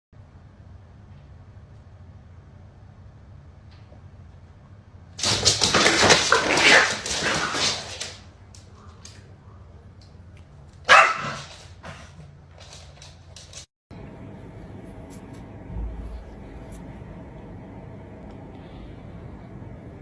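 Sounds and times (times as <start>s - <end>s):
dog barking: 10.9s - 12.1s.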